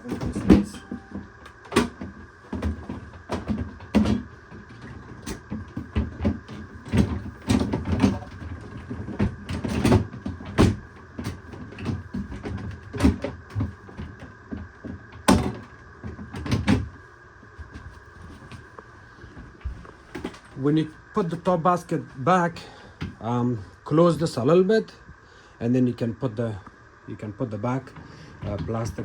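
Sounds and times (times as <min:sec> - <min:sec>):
faint steady hum: 0:00.0 - 0:29.0
plastic freezer drawer clattering: 0:00.1 - 0:14.0.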